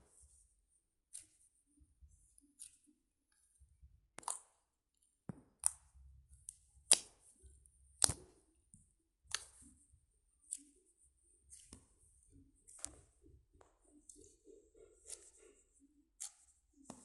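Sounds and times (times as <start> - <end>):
slime clicking and snapping: 4.2 - 4.5, 5.6 - 7.2, 7.9 - 8.4, 9.2 - 9.7.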